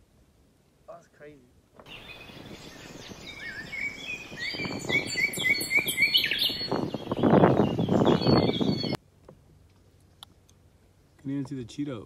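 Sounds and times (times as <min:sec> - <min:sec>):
small birds chirping: 0:01.8 - 0:09.0.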